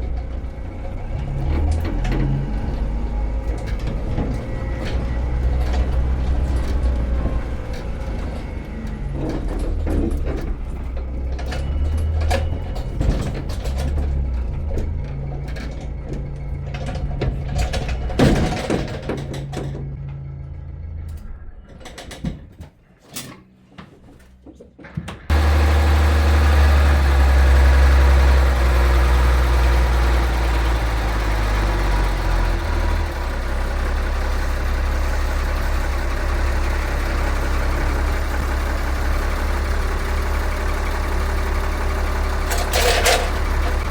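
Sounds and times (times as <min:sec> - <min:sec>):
engine running: 0:00.0 - 0:22.0, 0:25.3 - 0:43.9
knocks and clanks: 0:01.4 - 0:20.5, 0:21.1 - 0:43.9.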